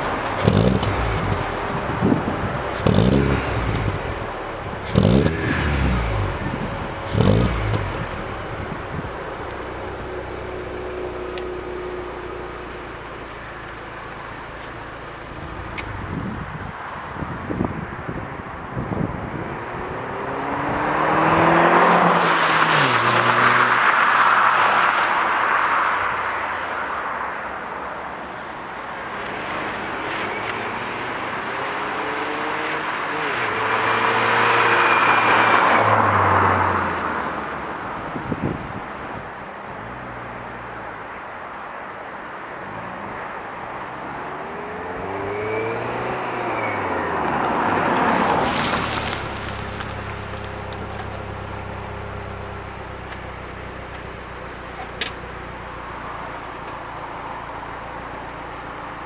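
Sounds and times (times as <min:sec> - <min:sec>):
car engine idling: 0:00.0 - 0:20.0, 0:36.2 - 0:59.0
car driving past: 0:13.4 - 0:39.2, 0:42.7 - 0:53.5.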